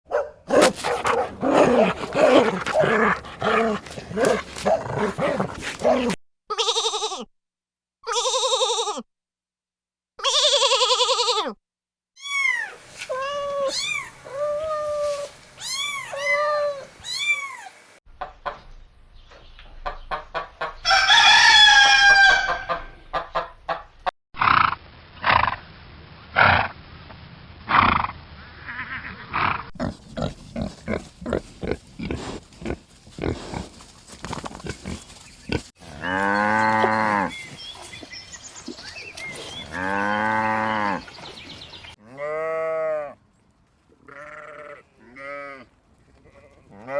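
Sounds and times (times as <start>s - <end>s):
long low animal calls: 0.5s - 6.2s
rooster crowing: 20.8s - 22.8s.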